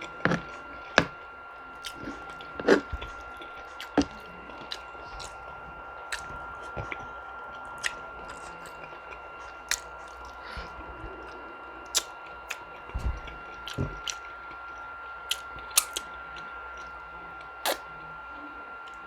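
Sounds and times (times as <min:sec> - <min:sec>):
person chewing food: 0:00.0 - 0:18.0
faint high whine: 0:00.0 - 0:19.0
lip-smacking clicks: 0:07.8 - 0:10.6, 0:11.3 - 0:14.3, 0:15.3 - 0:16.1.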